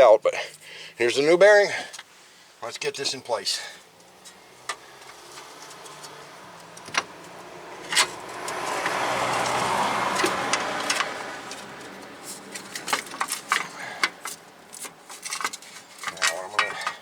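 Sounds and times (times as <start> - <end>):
passing vehicle road noise: 3.5 - 16.0.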